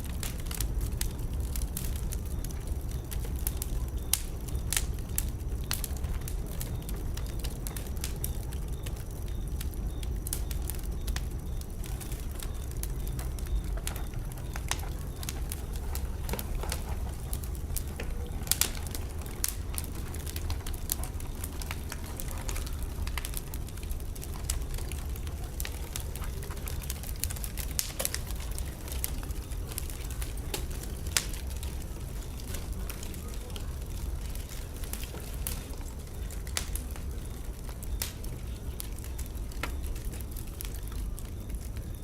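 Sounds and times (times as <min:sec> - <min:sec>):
low rumble of fire: 0:00.0 - 0:42.0
wood fire crackling and popping: 0:00.0 - 0:42.0.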